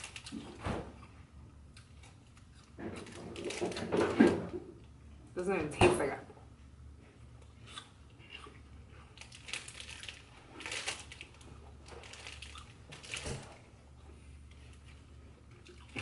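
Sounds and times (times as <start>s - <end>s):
crunchy chewing of apple: 0.0s - 3.8s, 7.1s - 16.0s
steady low hum: 0.0s - 16.0s.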